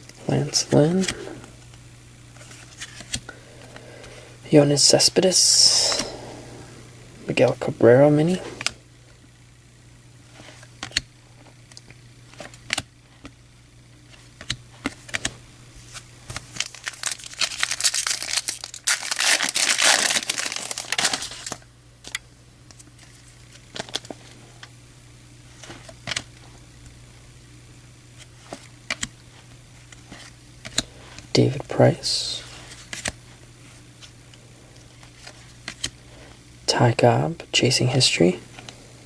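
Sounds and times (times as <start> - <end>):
foil wrapper tearing and crinkling: 16.3 - 22.2, 23.0 - 24.2.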